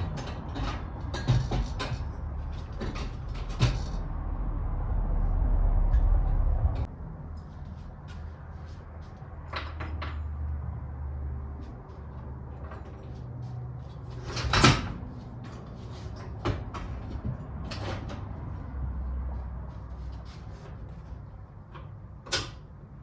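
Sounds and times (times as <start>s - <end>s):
metal parts and tools clicking: 0.0s - 4.0s.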